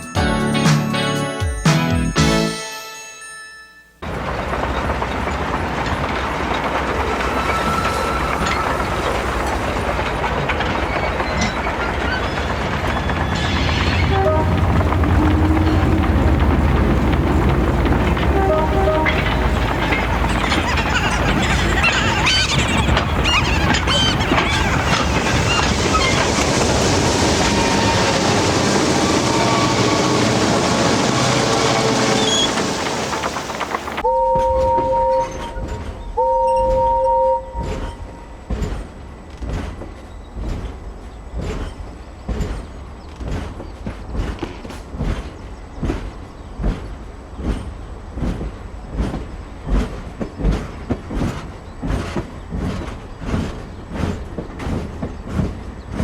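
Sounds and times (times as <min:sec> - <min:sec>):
high wheel squeals: 0:04.0 - 0:34.0
train rumbling on rails: 0:04.0 - 0:56.0.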